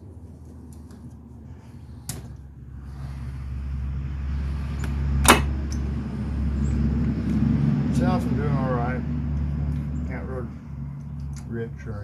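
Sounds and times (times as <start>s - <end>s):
vehicle engine running: 0.0s - 12.0s
sharp click: 4.8s - 5.6s.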